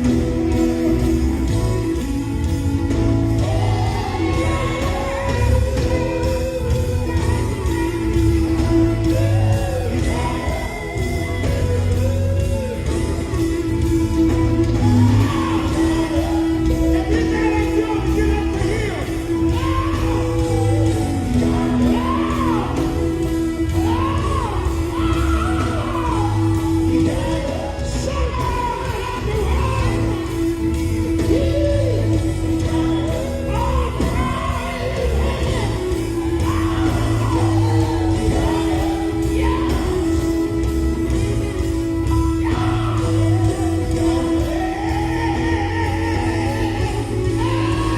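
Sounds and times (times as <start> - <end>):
band playing steady beat: 0.0 - 47.9
lead singer shouting: 14.6 - 41.1.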